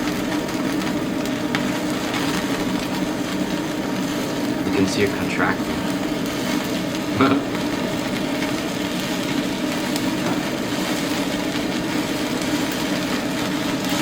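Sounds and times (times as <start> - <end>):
meat sizzling on a grill: 0.0 - 14.0
steady low drone: 7.1 - 7.7.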